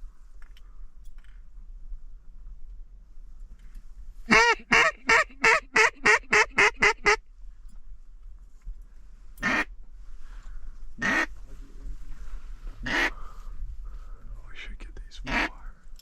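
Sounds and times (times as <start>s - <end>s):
duck quacking: 4.3s - 7.2s, 9.4s - 9.7s, 11.0s - 11.3s, 12.8s - 13.2s, 15.2s - 15.5s.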